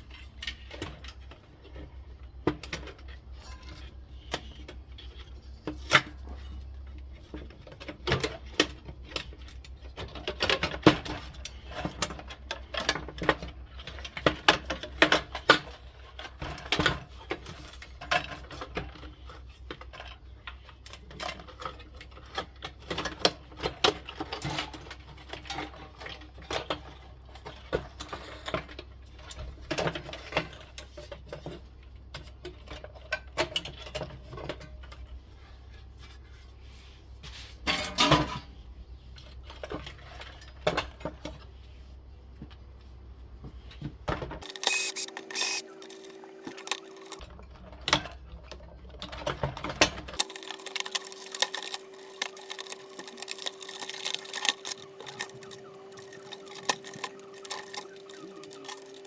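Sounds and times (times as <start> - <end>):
metallic clinks of hand tools: 50.2 - 59.0.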